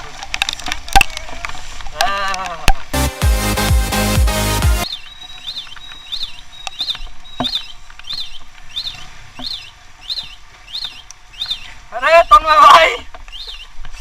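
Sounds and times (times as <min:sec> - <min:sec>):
bird calling: 0:04.8 - 0:14.0.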